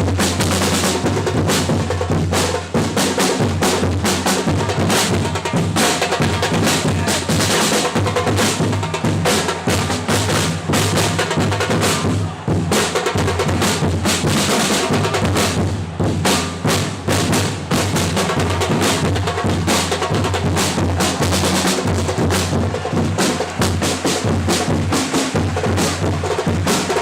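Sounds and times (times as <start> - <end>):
bass and snare drums beating: 0.0 - 27.0.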